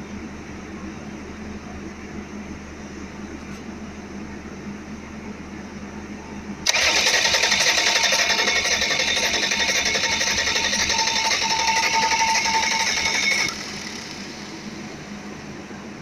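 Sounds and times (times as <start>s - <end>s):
low steady hum: 0.0s - 16.0s
car engine starting and running: 6.6s - 14.9s.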